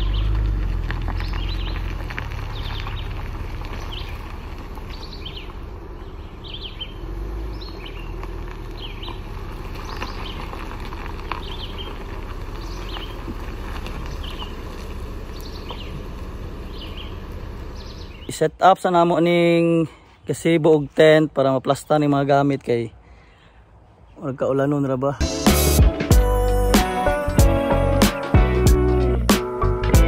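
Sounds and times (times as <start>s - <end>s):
steady low rumble: 0.0s - 18.6s
birds chirping: 0.0s - 30.0s.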